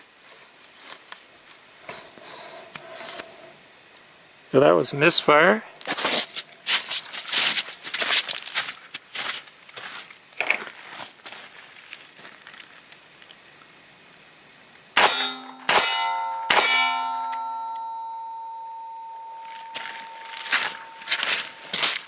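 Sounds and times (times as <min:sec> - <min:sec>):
metallic clangs ringing: 0:15.0 - 0:22.0.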